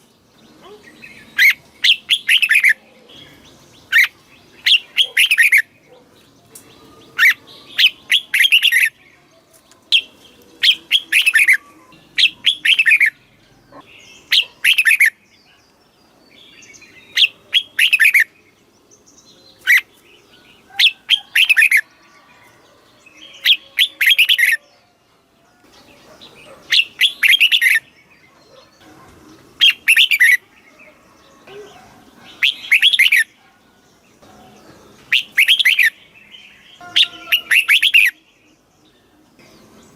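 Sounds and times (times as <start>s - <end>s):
bird singing sweeping notes: 9.9s - 22.4s, 25.8s - 33.4s, 34.4s - 39.9s.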